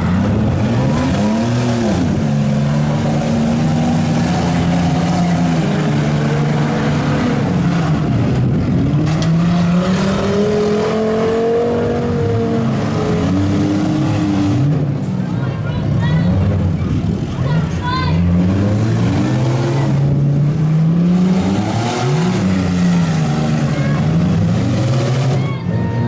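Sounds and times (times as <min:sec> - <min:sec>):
vehicle engines revving: 0:00.0 - 0:26.0.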